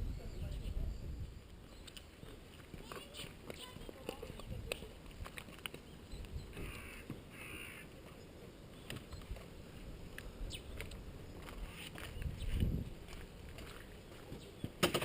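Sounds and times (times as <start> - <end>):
crow cawing: 6.6 - 7.9.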